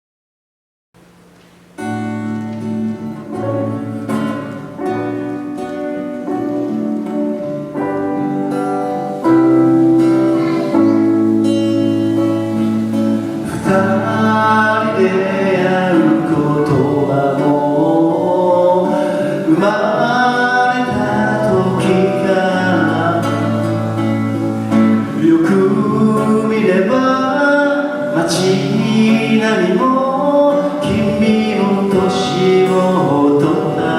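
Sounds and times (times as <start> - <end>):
rock band playing live: 1.9 - 18.0
person singing: 8.2 - 33.9.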